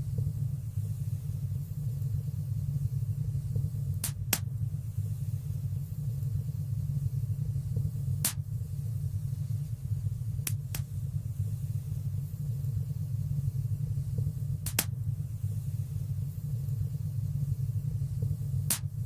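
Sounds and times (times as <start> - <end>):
wood fire crackling pops: 3.9 - 4.5, 8.2 - 8.5, 10.4 - 11.0, 14.6 - 15.0, 18.6 - 19.0.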